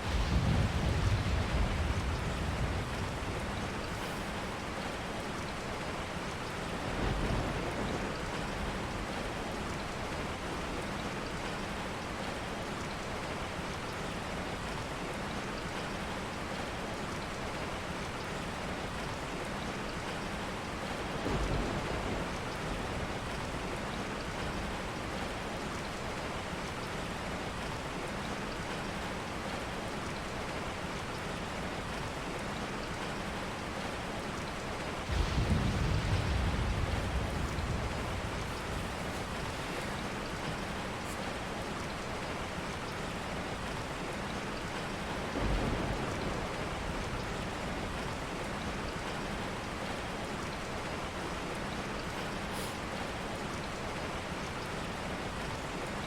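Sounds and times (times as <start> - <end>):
thunder rumbling: 0.0 - 4.6, 21.2 - 23.8, 35.0 - 41.1, 45.1 - 48.3
steady rain: 0.0 - 56.0.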